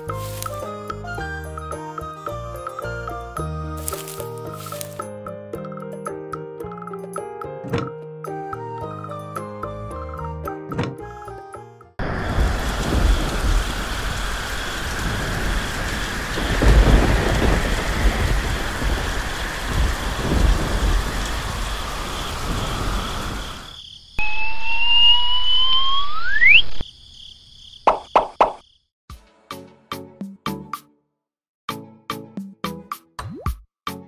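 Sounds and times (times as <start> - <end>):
rain: 0.2 - 0.6, 3.8 - 5.0, 12.0 - 23.8
rolling thunder: 12.0 - 23.7
rising whistle tone: 24.2 - 26.9.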